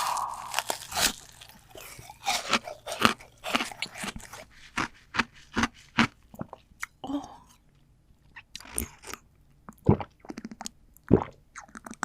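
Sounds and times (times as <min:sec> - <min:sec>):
chewing crunchy seafood: 0:00.0 - 0:10.7.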